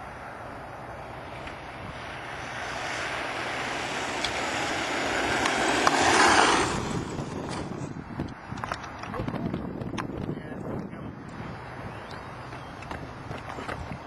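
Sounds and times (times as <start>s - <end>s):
electric rc truck passing: 0.0s - 8.7s.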